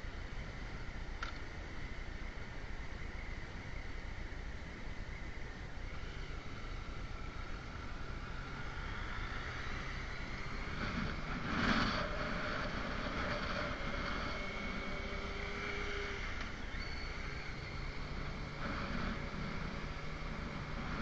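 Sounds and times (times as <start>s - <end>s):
motorcycle engine cruising: 5.8s - 21.0s
wind rushing over microphone: 7.6s - 21.0s.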